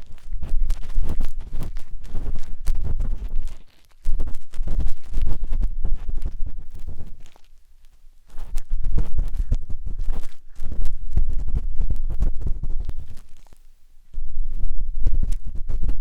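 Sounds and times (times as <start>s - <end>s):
matchsticks scraping on microphone: 0.0s - 13.7s, 14.5s - 16.0s.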